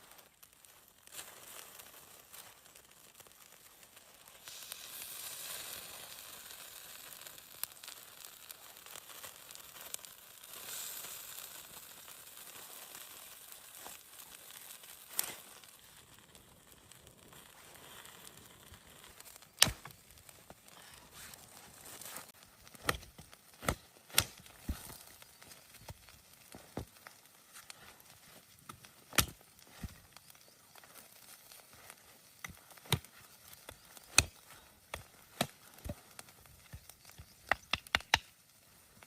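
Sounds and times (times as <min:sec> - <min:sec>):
faint hiss: 0:00.0 - 0:39.0
sharp knocks and cracks: 0:22.7 - 0:25.0, 0:28.7 - 0:30.0, 0:34.1 - 0:36.0, 0:36.6 - 0:38.3.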